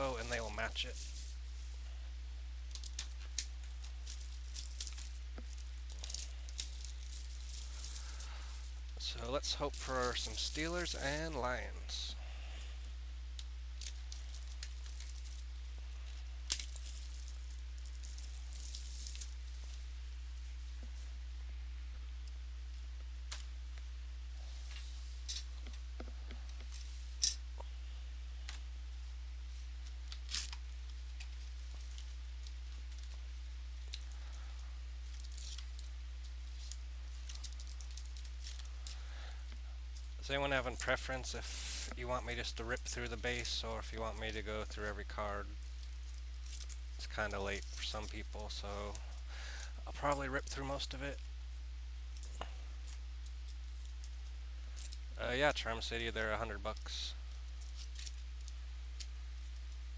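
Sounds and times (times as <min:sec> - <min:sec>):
low electrical hum: 0:00.0 - 0:59.9
packaging crinkling and tearing: 0:02.7 - 0:11.4, 0:13.8 - 0:19.5, 0:30.0 - 0:33.2, 0:35.0 - 0:40.1.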